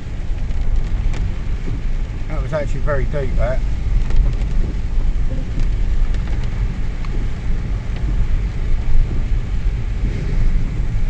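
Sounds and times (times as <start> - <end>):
car engine and road noise: 0.0 - 11.0
faint ticks: 3.9 - 9.5.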